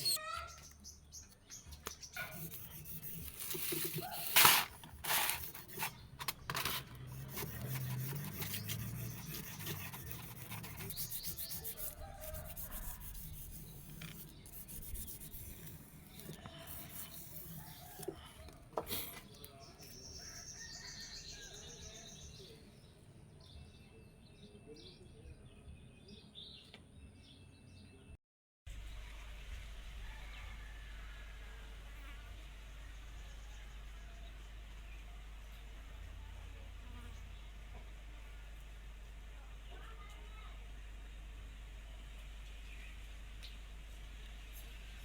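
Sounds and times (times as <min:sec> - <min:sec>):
hand rubbing and scraping on steel: 0:02.2 - 0:18.2.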